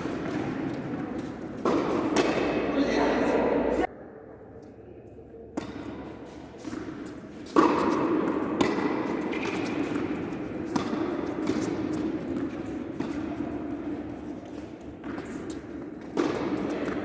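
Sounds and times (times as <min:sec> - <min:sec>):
tennis ball hit by racket: 0:00.0 - 0:02.7, 0:06.6 - 0:17.0
steady background noise: 0:00.0 - 0:09.2.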